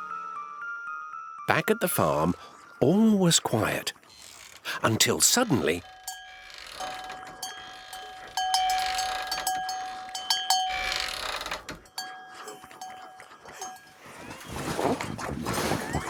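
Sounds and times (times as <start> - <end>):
bell ringing: 5.4 - 14.1.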